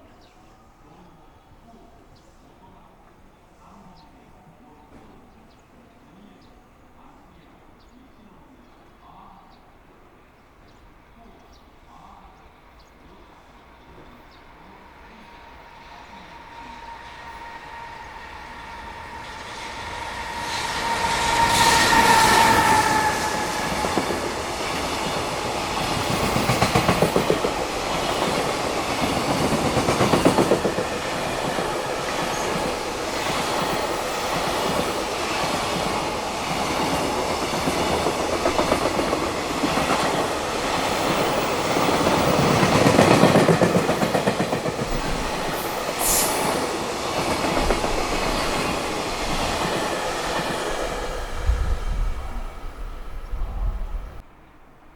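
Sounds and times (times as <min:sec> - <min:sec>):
electric locomotive whining: 0:09.7 - 0:54.9
train wheels clattering: 0:15.4 - 0:53.0.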